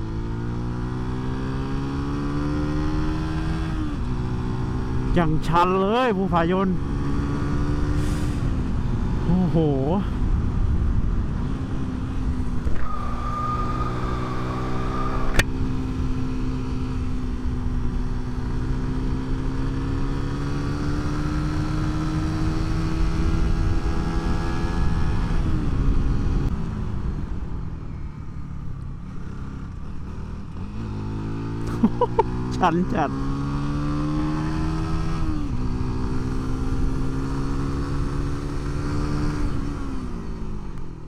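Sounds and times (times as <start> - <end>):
road noise: 0.0 - 41.0
vehicle engine climbing hill: 0.0 - 41.0
wind noise: 7.2 - 18.9
sharp click: 15.1 - 15.5.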